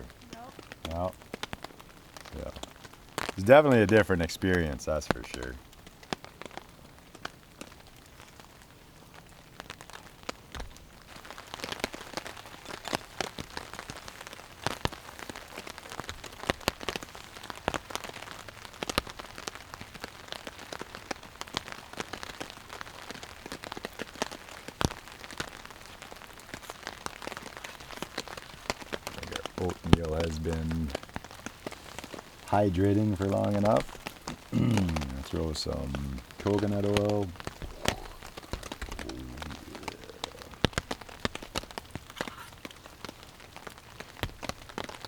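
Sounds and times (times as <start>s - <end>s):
rain falling: 0.0s - 45.0s.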